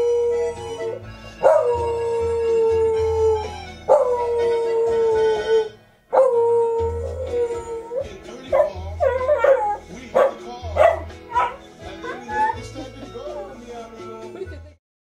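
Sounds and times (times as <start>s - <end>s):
dog howling: 0.0s - 12.7s
dog yipping and whimpering: 8.6s - 12.7s.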